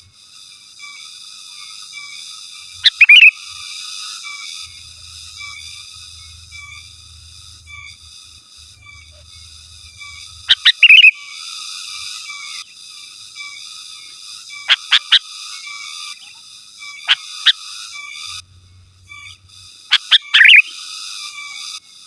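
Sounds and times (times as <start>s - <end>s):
high-pitched chirping chorus: 2.7s - 3.8s, 8.6s - 11.2s, 14.5s - 15.3s, 17.0s - 18.4s, 19.1s - 20.9s
bulbul whistled calls: 2.8s - 3.6s, 10.1s - 11.2s, 14.7s - 15.2s, 17.1s - 17.6s, 19.9s - 20.9s.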